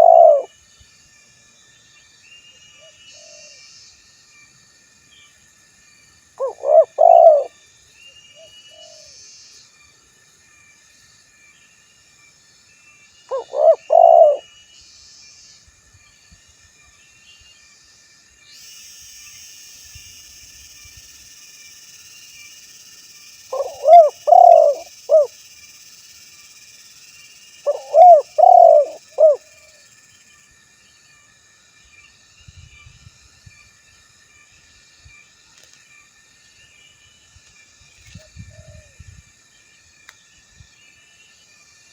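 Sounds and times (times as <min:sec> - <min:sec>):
dove cooing: 0:00.0 - 0:00.5, 0:06.4 - 0:07.5, 0:13.3 - 0:14.4, 0:23.5 - 0:25.3, 0:27.6 - 0:29.4
faint high hiss: 0:17.2 - 0:30.5.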